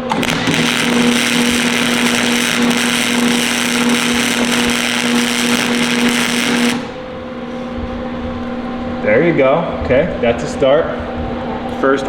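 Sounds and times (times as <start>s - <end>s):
welding arc crackling and hissing: 0.0s - 7.1s
welder electrical hum: 0.0s - 12.0s.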